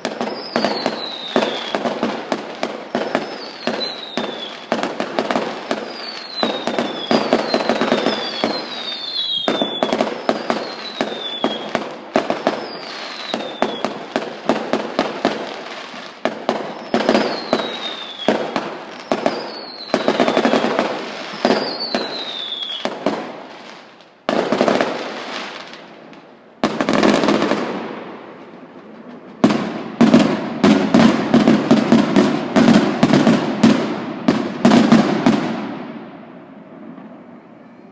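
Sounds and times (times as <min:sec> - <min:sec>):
falling firework whistles: 0:00.0 - 0:25.8, 0:36.6 - 0:37.9
fireworks crackling bangs: 0:00.0 - 0:37.6.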